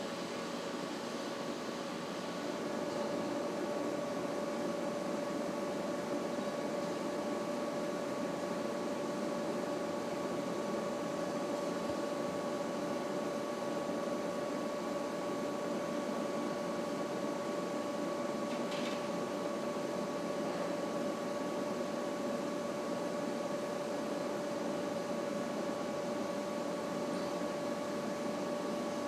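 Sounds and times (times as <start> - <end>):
machine mechanical hum: 0.0 - 29.0.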